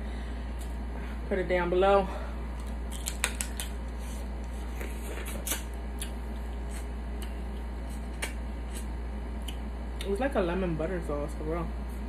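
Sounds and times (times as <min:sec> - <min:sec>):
steady low hum: 0:00.0 - 0:12.0
wet clicks and lip smacks: 0:09.4 - 0:10.1.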